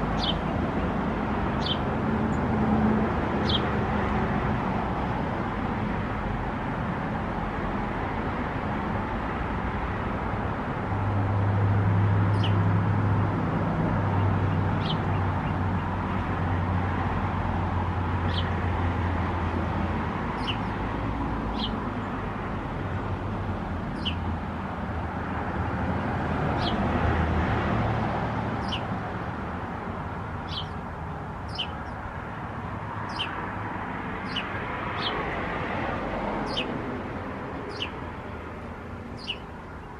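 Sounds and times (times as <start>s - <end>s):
small birds chirping: 0.0s - 2.5s, 3.4s - 3.8s, 12.3s - 12.7s, 14.1s - 16.0s, 18.2s - 18.6s, 20.3s - 20.8s, 21.5s - 22.2s, 23.9s - 24.3s, 26.5s - 26.8s, 28.6s - 29.0s, 30.4s - 32.2s, 33.0s - 33.5s, 34.2s - 35.4s, 36.4s - 36.8s, 37.7s - 38.1s, 39.0s - 39.9s
vehicle traffic rumble: 0.0s - 39.9s.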